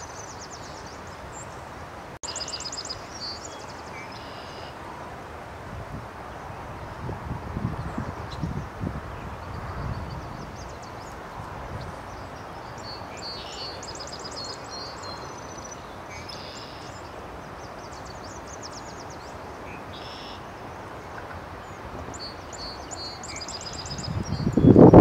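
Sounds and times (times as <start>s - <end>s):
outdoor background hiss: 0.0s - 25.0s
small birds chirping and trilling: 2.2s - 4.8s, 7.6s - 25.0s
wind buffeting microphone: 5.3s - 13.2s, 20.5s - 25.0s.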